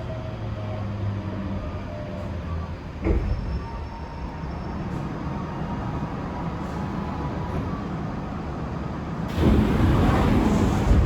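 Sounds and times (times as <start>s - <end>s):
train interior rumble: 1.6s - 11.0s
sudden rush of noise: 9.3s - 11.0s.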